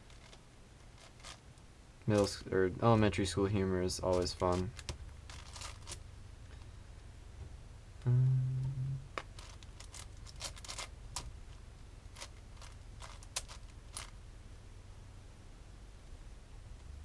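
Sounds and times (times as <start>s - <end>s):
puzzle cube clicking: 12.2s - 14.1s.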